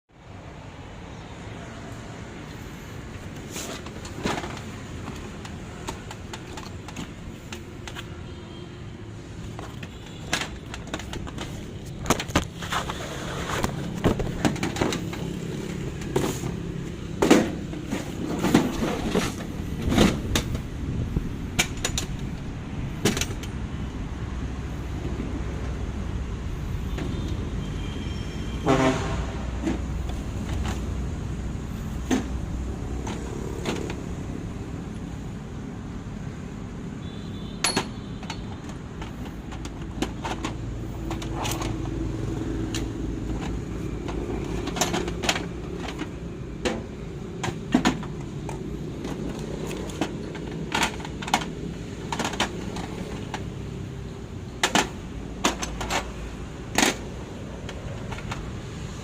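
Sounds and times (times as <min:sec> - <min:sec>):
hard objects clicking and knocking: 0:03.4 - 0:08.2, 0:09.4 - 0:20.7, 0:37.6 - 0:59.0.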